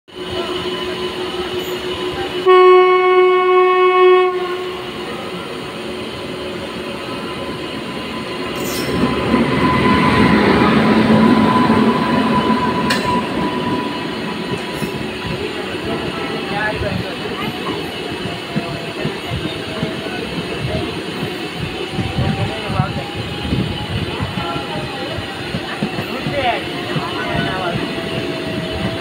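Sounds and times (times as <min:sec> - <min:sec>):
train wheels rumbling on rails: 0:00.1 - 0:29.0
locomotive horn: 0:02.4 - 0:05.0.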